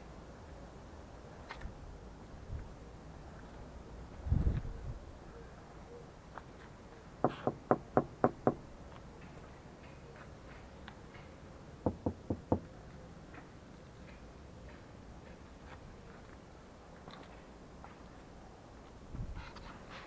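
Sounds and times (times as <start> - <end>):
knocking: 11.8 - 12.7.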